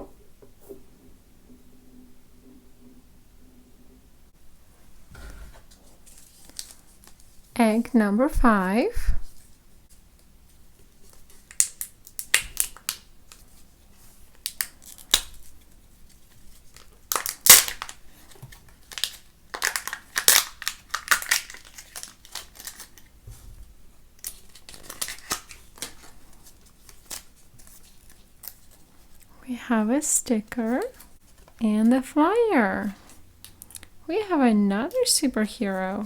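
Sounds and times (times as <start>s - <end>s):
wrappers torn and crinkled: 11.4s - 13.4s, 14.3s - 18.0s, 18.8s - 23.1s, 24.2s - 28.8s.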